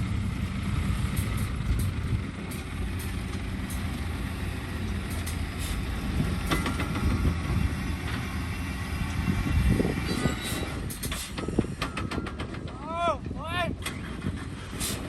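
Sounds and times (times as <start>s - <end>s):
heavy machinery diesel engines running: 0.0s - 15.0s
metallic clanks: 4.9s - 8.2s, 10.0s - 12.9s
metallic squeal: 10.0s - 12.0s.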